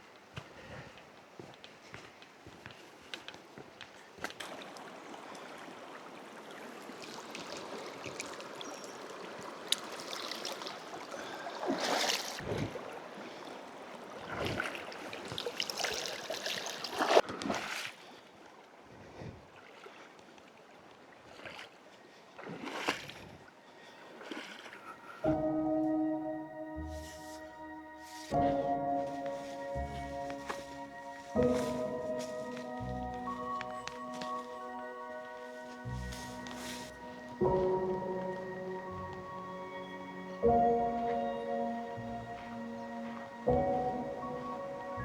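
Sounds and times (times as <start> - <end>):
footsteps on rocky trail: 0.3 - 4.4, 26.9 - 37.4
flowing water rushing: 4.2 - 17.2
music with bell-like tones: 25.1 - 45.0.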